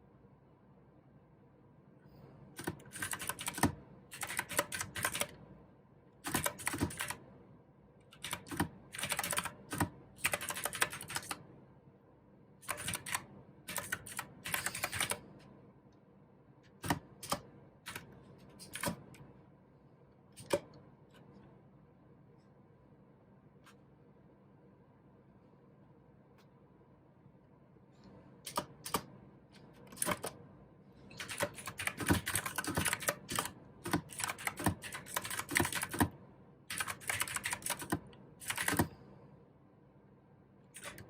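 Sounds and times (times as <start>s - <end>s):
mechanical keyboard typing: 2.6s - 5.4s, 6.2s - 7.2s, 8.1s - 11.4s, 12.6s - 15.2s, 16.8s - 19.2s, 28.5s - 29.1s, 29.9s - 30.4s, 31.2s - 38.9s, 40.8s - 41.0s.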